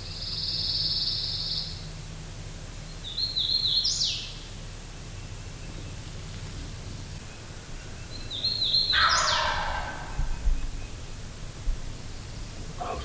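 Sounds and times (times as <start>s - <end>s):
songbirds singing: 2.9s - 13.0s
steady low hum: 4.8s - 13.0s.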